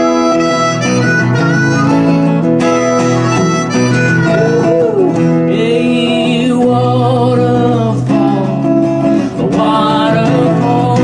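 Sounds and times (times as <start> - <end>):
harmonica melody with bending notes: 0.0 - 7.0
guitar accompaniment: 0.0 - 11.0
person singing: 3.8 - 11.0.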